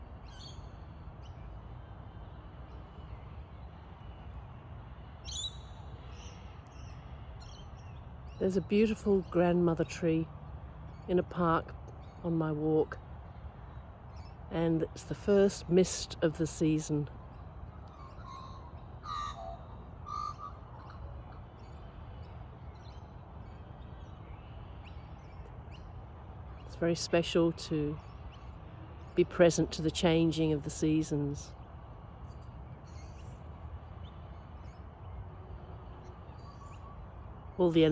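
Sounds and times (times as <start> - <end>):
bird calls: 5.2 - 9.4, 13.3 - 29.8, 32.3 - 37.9
short bird calls: 17.8 - 21.3.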